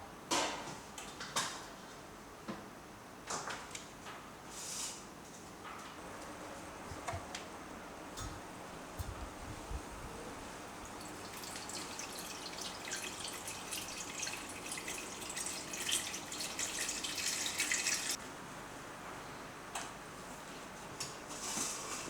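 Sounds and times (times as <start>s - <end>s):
tap running into a sink: 10.8s - 18.2s.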